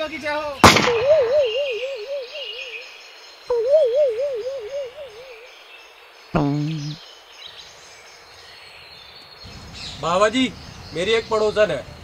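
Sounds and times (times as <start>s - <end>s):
warbling tone: 0.8s - 2.8s, 3.5s - 5.5s.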